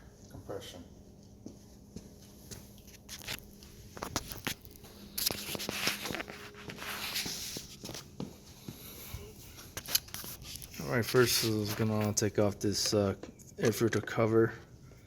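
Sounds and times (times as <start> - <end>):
faint steady hum: 0.0 - 15.0
rustling and scraping: 2.4 - 13.5.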